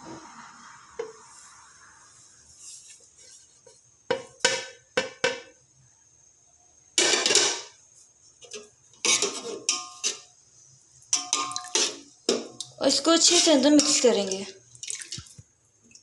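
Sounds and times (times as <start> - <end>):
metal spoon clinking on pot: 8.5 - 10.3, 11.1 - 12.0.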